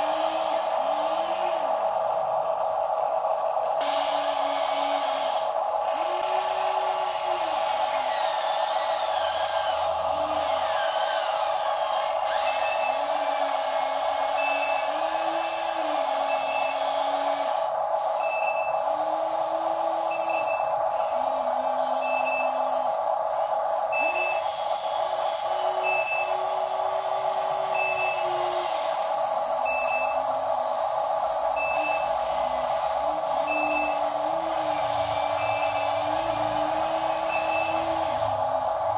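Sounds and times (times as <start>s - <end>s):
toy truck electric whine: 0.0s - 38.9s
high reversing beeps: 12.3s - 13.3s, 14.1s - 17.0s, 18.2s - 18.8s, 20.0s - 21.1s, 21.9s - 22.8s, 23.9s - 24.5s, 25.6s - 26.6s, 27.6s - 28.6s, 29.6s - 30.3s, 31.5s - 38.9s.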